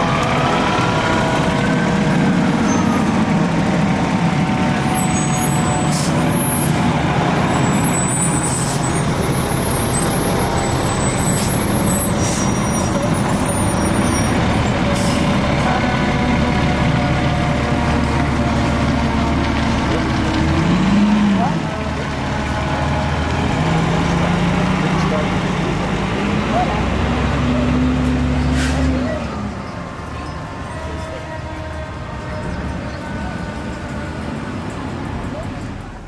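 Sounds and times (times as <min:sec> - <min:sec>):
siren: 0:00.0 - 0:06.8, 0:29.0 - 0:34.7
heavy vehicle engine running: 0:00.0 - 0:36.0
street noise: 0:00.0 - 0:36.0.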